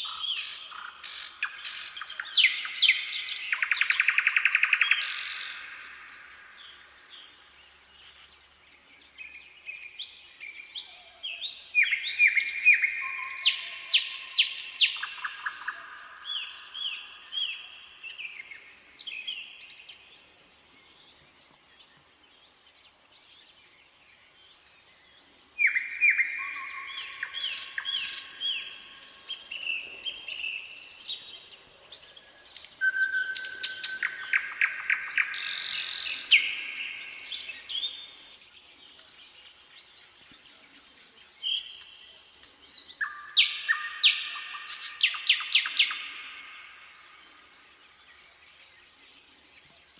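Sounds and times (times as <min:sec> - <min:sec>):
nightingale singing: 0:00.0 - 0:49.9.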